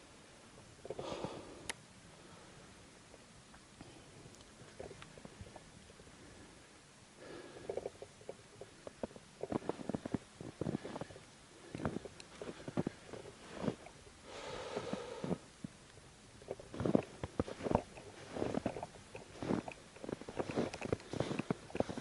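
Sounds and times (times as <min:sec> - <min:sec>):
footsteps crunching in snow: 0:09.4 - 0:11.2, 0:11.8 - 0:13.9, 0:16.7 - 0:22.0.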